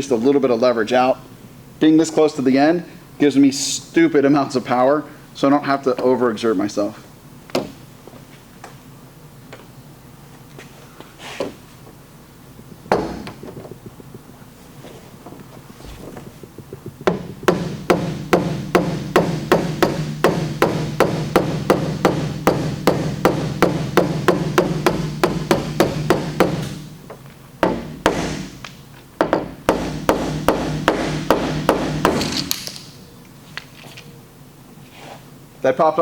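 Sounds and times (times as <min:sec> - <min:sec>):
hammer tapping on metal panel: 0:17.1 - 0:26.8, 0:27.6 - 0:28.5, 0:29.2 - 0:32.2.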